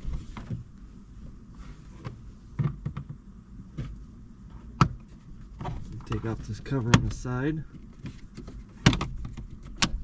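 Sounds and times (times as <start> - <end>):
clicks and knocks of plastic parts: 5.6 - 10.0.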